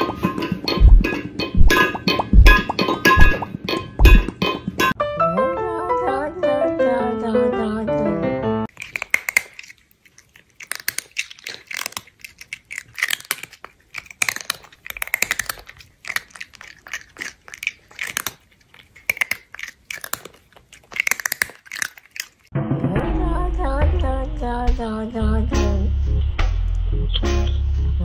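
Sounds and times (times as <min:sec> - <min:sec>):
crunchy chewing: 0:08.7 - 0:22.5.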